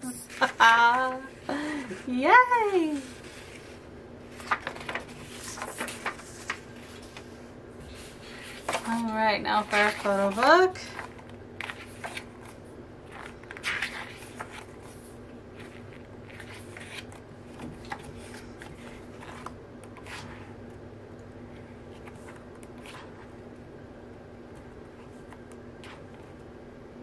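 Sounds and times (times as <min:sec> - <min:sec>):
faint steady hum: 0:00.0 - 0:27.0
paper and packaging rustling: 0:01.9 - 0:20.4.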